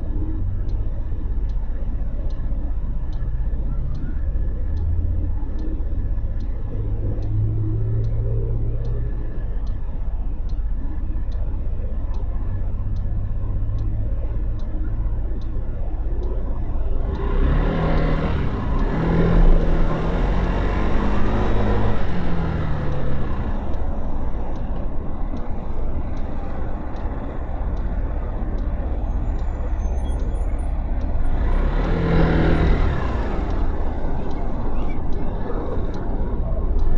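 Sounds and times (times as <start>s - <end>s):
regular ticking: 0.0s - 36.9s
wind and road noise: 0.0s - 36.9s
motorcycle engine revving: 17.1s - 23.8s, 31.3s - 36.9s.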